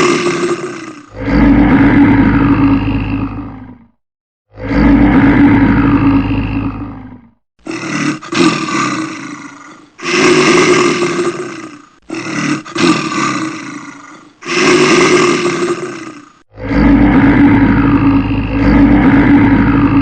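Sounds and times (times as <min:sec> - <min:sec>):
large animal roaring: 0:00.0 - 0:20.0.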